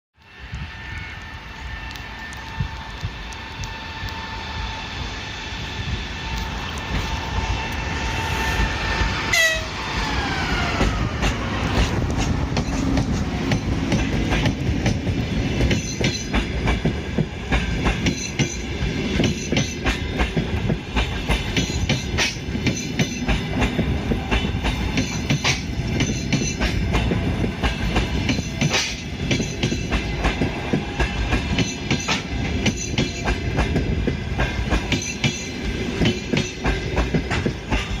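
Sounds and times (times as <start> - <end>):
falling whine of passing train: 0.2 - 38.0
train rumbling: 0.2 - 38.0
wheels clacking over rail joints: 9.0 - 38.0
locomotive horn: 9.3 - 9.8.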